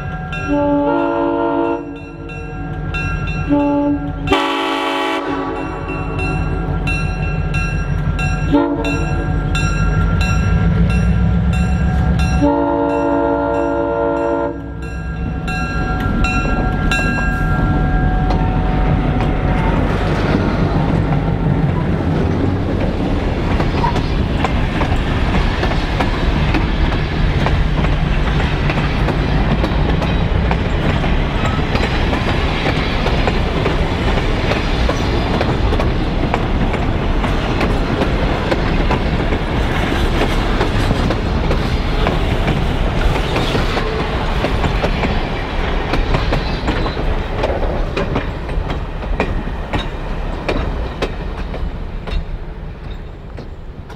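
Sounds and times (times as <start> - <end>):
locomotive engine hum: 0.0 - 53.9
train wheels clacking over rails: 14.6 - 53.9.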